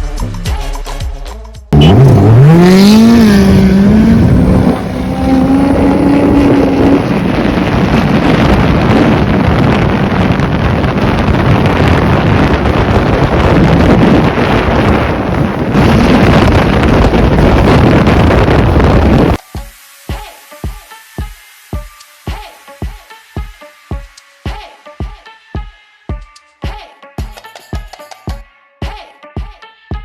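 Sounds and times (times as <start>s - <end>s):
jet ski engine revving: 1.8s - 9.8s
wind buffeting microphone: 2.0s - 19.4s
background music: 19.4s - 30.0s.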